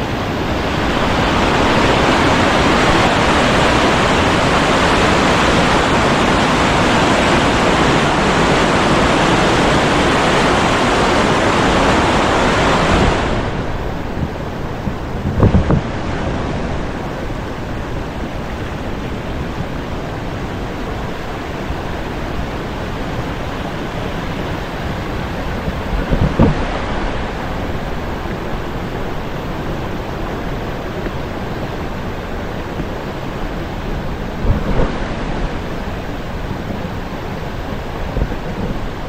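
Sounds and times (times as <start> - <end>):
mountain stream rushing: 0.0 - 39.0
low bumps: 32.4 - 39.0.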